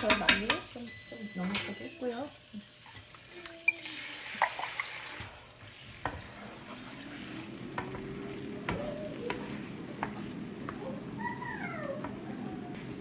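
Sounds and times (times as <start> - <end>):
utensil tapping against pan: 0.0 - 0.7, 7.7 - 13.0
eggs sizzling in a frying pan: 0.0 - 13.0.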